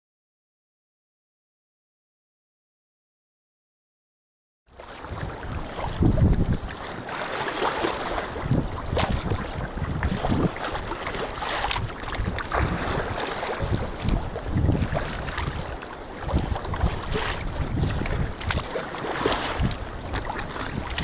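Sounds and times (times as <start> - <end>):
water washing around kayak: 4.7 - 21.0
water splashes: 4.8 - 21.0
wind buffeting microphone: 4.8 - 21.0.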